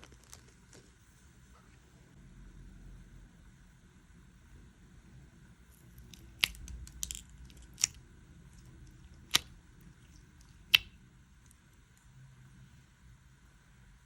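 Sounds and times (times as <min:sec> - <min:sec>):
slime crackling: 0:00.0 - 0:01.0, 0:05.7 - 0:11.7
slime popping: 0:05.8 - 0:11.0.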